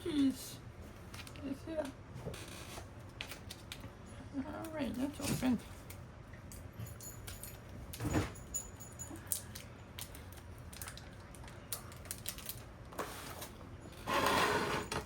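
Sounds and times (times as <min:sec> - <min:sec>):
packaging crinkling: 0:10.0 - 0:12.6.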